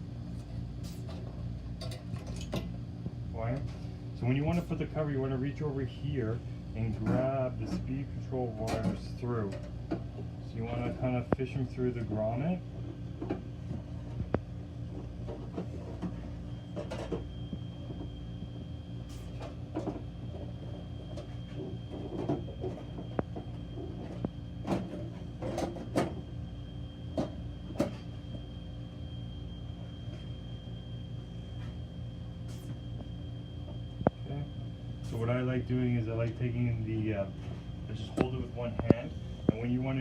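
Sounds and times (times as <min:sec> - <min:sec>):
steady background hum: 0:00.0 - 0:40.0.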